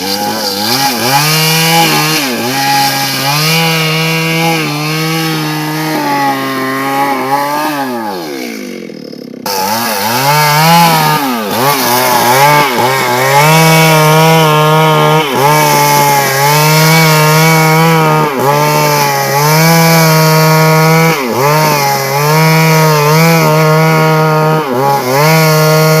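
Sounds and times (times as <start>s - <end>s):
chainsaw cutting log: 0.0s - 26.0s.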